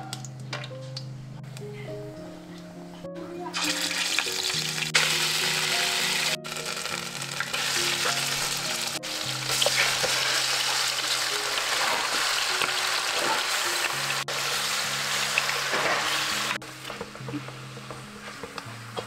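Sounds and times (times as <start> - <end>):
food sizzling in a pan: 3.6 - 19.0.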